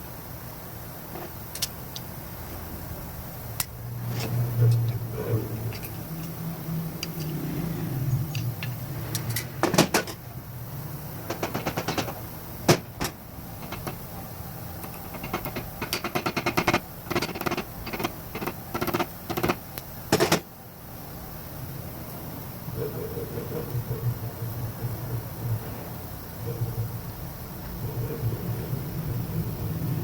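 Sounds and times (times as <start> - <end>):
hand tools clicking and rattling: 5.6 - 6.4, 7.0 - 7.4, 8.3 - 10.2, 11.3 - 14.0, 14.8 - 20.4
sharp knocks on metal: 11.3 - 14.0, 15.1 - 20.4.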